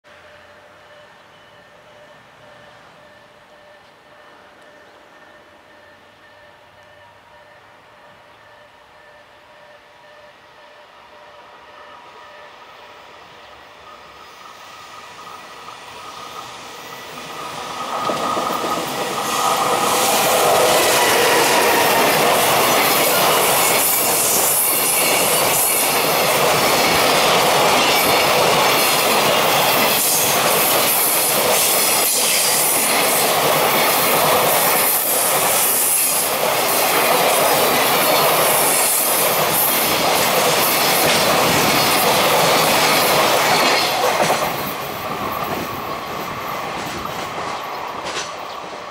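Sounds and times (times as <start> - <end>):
freight train passing: 0.0 - 48.9
wheels clattering on rails: 16.2 - 48.7.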